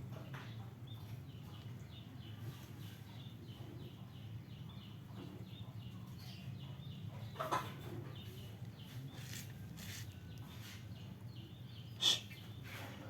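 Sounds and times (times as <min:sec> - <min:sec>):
faint bird chirping: 0:00.1 - 0:13.0
sharp bird calls: 0:11.4 - 0:12.7.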